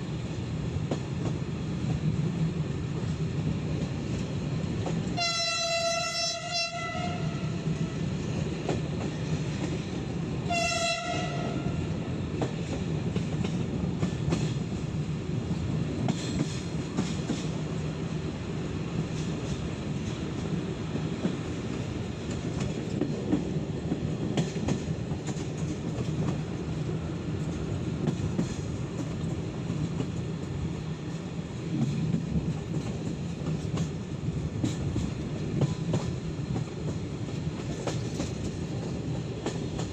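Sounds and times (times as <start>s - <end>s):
train wheels rumbling on rails: 0.0s - 39.9s
train horn: 5.2s - 8.1s, 10.4s - 12.0s.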